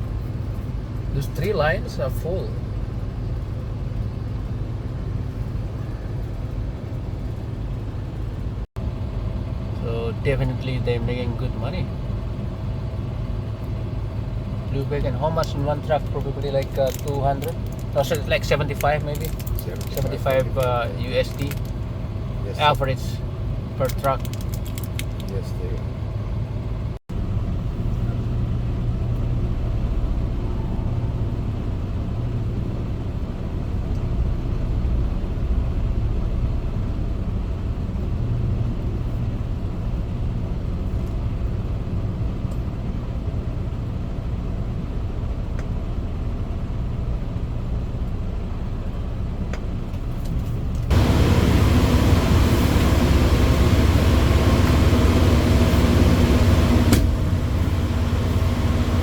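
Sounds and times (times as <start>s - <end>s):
diesel truck engine idling: 50.9s - 59.0s
steady rushing noise: 50.9s - 59.0s.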